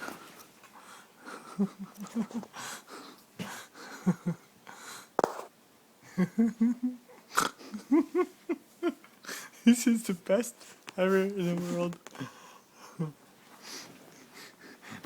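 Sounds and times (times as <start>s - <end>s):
soft breathy laughter: 0.0s - 5.1s, 6.0s - 9.9s, 12.1s - 15.0s.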